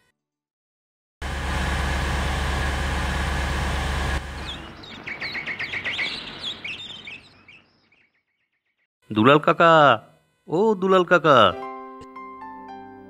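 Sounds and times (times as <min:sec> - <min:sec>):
car engine running: 0:01.2 - 0:06.2
birds chirping: 0:04.2 - 0:08.9.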